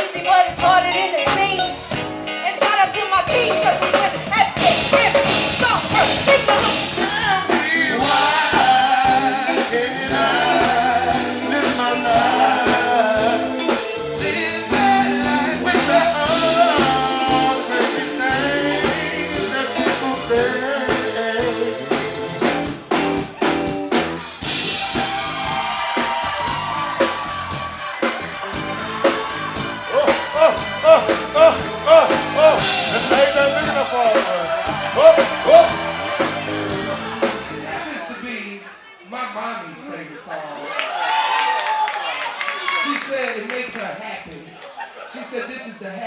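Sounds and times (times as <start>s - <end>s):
steady drum beat: 3.3s - 38.1s
person singing: 6.0s - 22.7s, 28.7s - 38.0s.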